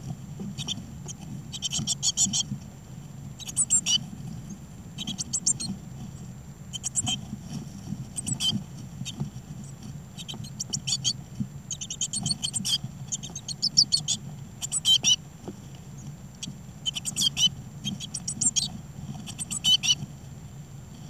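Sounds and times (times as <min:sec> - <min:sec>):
steady low hum: 0:00.0 - 0:21.0
nestlings high-pitched begging calls: 0:00.6 - 0:02.5, 0:03.4 - 0:04.0, 0:05.0 - 0:05.8, 0:06.7 - 0:07.2, 0:08.2 - 0:09.2, 0:10.2 - 0:15.2, 0:16.4 - 0:18.7, 0:19.3 - 0:20.0.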